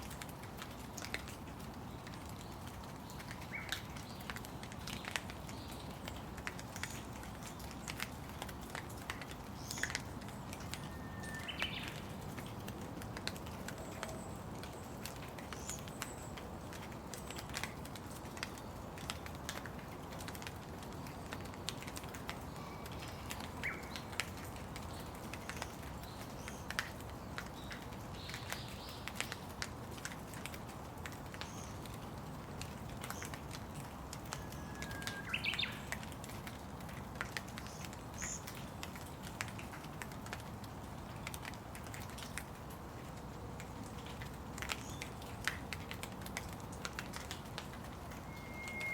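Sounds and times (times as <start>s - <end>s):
raindrops ticking: 0.0s - 48.9s
steady rain: 0.0s - 48.9s
birds chirping: 48.1s - 48.9s.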